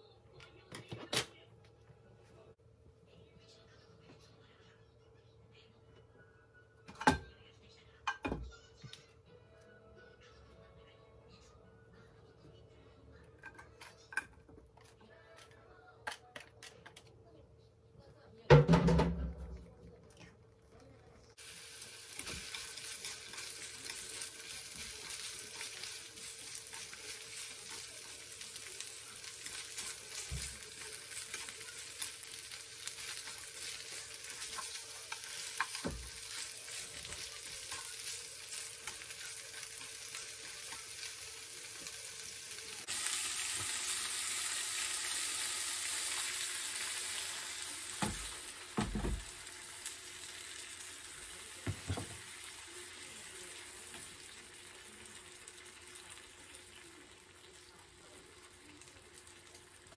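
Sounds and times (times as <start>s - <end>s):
food sizzling in hot oil: 21.4s - 59.9s.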